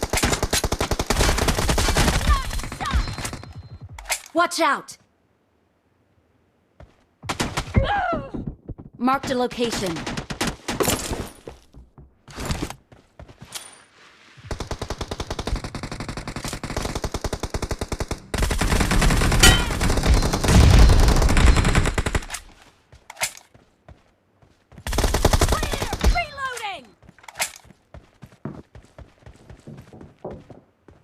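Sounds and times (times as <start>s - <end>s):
video game gunfire: 16.7s - 22.3s.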